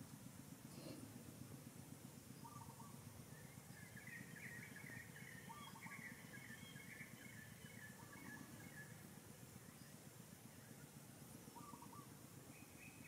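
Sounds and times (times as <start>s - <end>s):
low steady background rumble: 0.0s - 13.0s
bird chirps: 2.4s - 9.0s, 11.5s - 13.0s.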